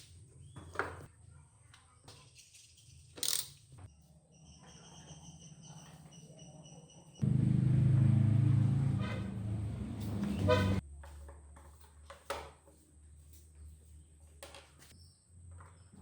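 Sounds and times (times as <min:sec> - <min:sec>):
two-stroke engine running: 0:07.2 - 0:10.8.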